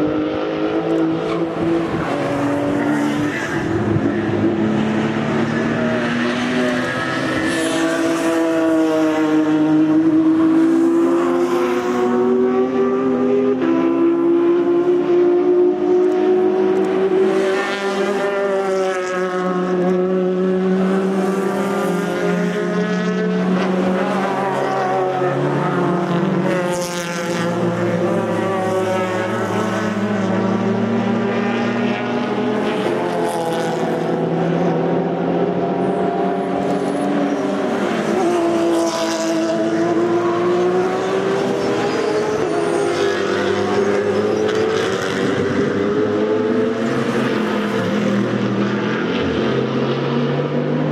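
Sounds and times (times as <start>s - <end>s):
race car engines revving past: 0.0s - 50.9s.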